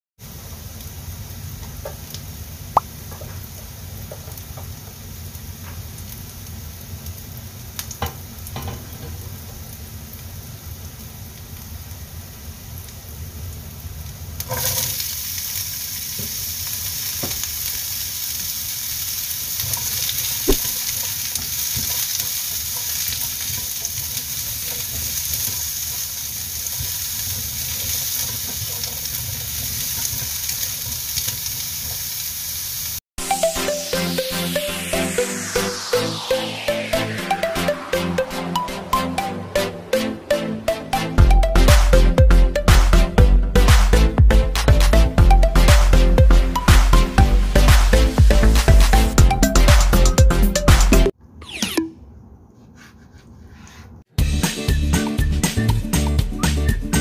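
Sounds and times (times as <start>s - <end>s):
food sizzling in hot oil: 0.2s - 33.0s.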